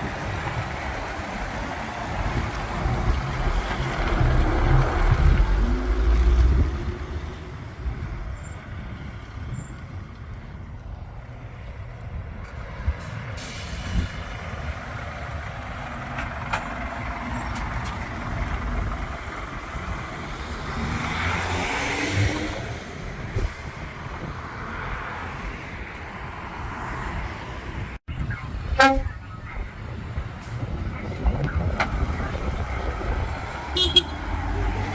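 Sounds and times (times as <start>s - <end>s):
diesel trucks driving by: 0.0s - 34.9s
truck horn toot: 28.7s - 29.3s, 33.8s - 34.4s.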